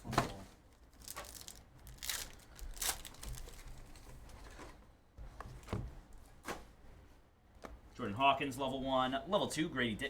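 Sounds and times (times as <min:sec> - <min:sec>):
card wrappers crinkling and tearing: 0:00.8 - 0:04.1.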